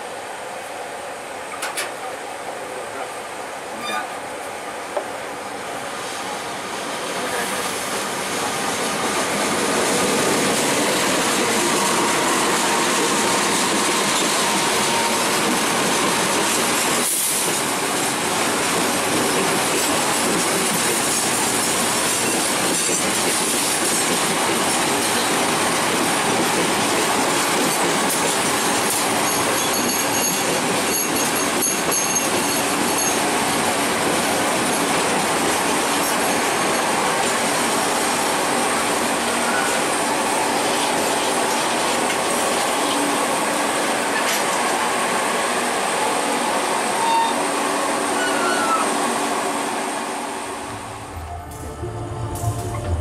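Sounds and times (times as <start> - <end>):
train wheels clickety-clack: 1.5 - 2.0, 7.2 - 44.8
high wheel squeals: 3.8 - 4.2, 47.0 - 49.0.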